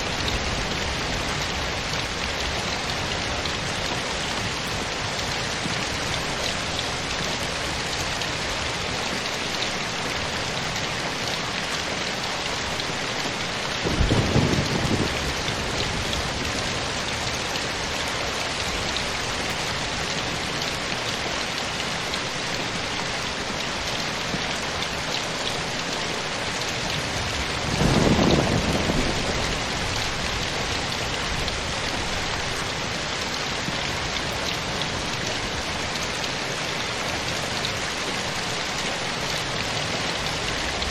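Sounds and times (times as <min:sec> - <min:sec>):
heavy rain: 0:00.0 - 0:40.9
low rumbles of thunder: 0:13.8 - 0:17.0, 0:27.1 - 0:31.6.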